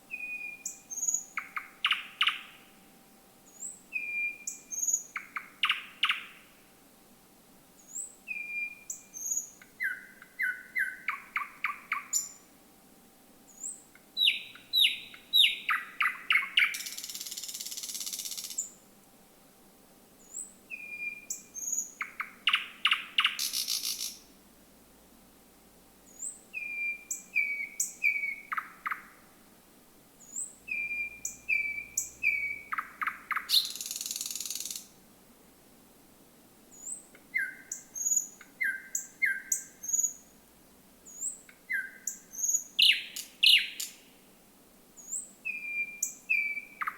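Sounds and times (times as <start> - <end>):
bird singing whistled notes: 0.1 - 2.7, 3.4 - 6.5, 7.8 - 12.5, 13.5 - 18.8, 20.2 - 24.3, 26.1 - 29.2, 30.2 - 34.9, 36.7 - 40.3, 41.1 - 44.1, 45.0 - 46.9.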